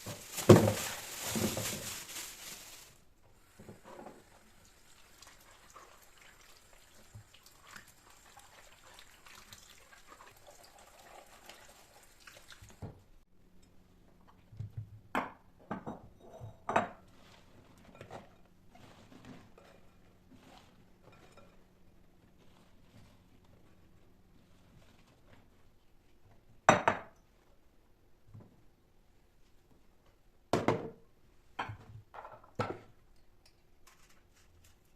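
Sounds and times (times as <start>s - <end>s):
kitchen items clinking and knocking: 0.0s - 2.7s.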